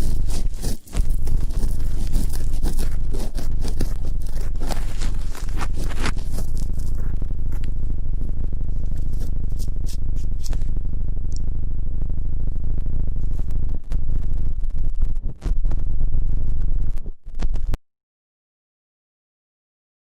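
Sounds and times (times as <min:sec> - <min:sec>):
ear cleaning scraping and rubbing: 0:00.0 - 0:10.8
deep steady hum: 0:00.0 - 0:17.8.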